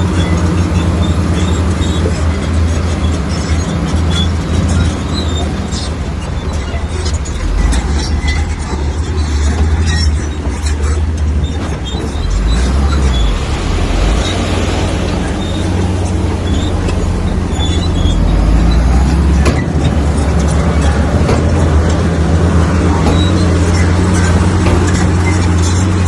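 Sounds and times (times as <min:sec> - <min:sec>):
heavy diesel machinery running: 0:00.0 - 0:26.0
sharp metal clanks: 0:15.1 - 0:26.0.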